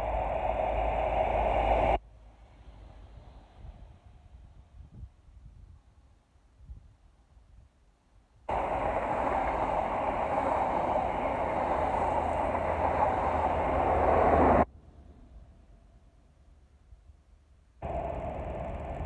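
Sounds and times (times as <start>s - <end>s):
diesel locomotive engine: 0.0s - 5.0s, 8.5s - 16.6s, 17.8s - 19.0s
train coaches rumbling over rails: 8.5s - 14.7s.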